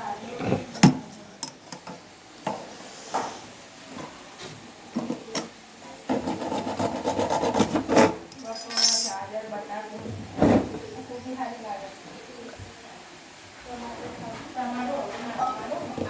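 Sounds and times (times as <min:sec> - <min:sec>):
continuous rasping scrape: 0:06.1 - 0:09.2.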